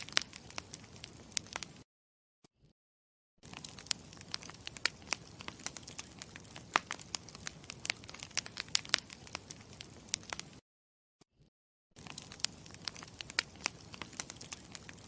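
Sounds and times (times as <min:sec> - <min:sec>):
campfire crackling and popping: 0:00.0 - 0:01.8, 0:03.4 - 0:10.6, 0:12.0 - 0:15.0.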